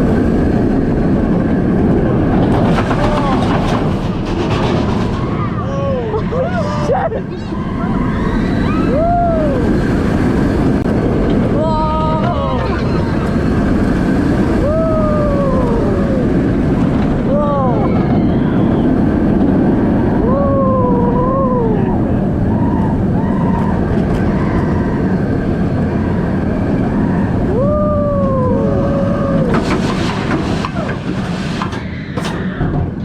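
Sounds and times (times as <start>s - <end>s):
roller coaster track rumble: 0.0s - 33.0s
roller coaster wind roar: 0.0s - 33.0s
riders whooping: 5.0s - 10.6s, 11.5s - 32.9s.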